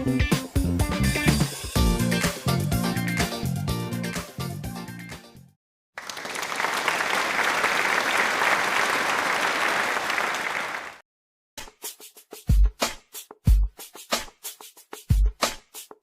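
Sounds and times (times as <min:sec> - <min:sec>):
background music: 0:00.0 - 0:05.5
applause: 0:06.0 - 0:11.0.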